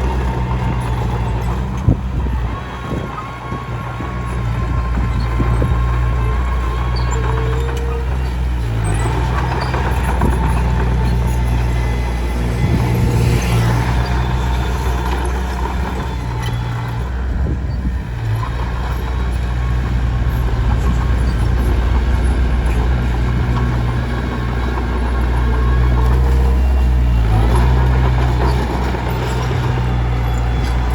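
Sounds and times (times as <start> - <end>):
bulldozer diesel engine running: 0.0 - 30.9.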